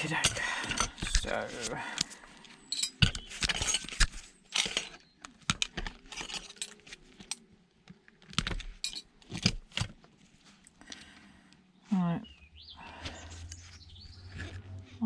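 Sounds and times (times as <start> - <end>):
scrap metal clinking and clattering: 0.0 - 7.5, 8.4 - 9.9.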